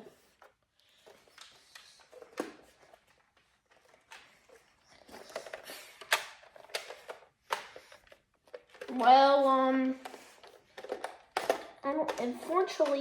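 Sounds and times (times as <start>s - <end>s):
plastic toy blaster clicks and rattles: 3.8s - 13.0s.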